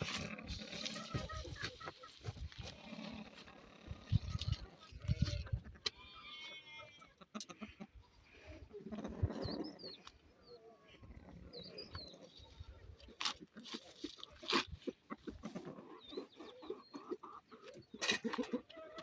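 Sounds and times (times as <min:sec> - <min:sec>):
small birds chirping: 0:07.0 - 0:19.0.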